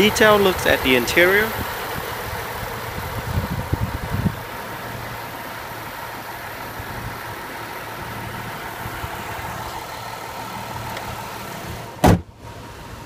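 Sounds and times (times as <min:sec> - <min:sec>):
car engine idling: 0:00.0 - 0:13.0
car hood slamming shut: 0:12.0 - 0:12.3.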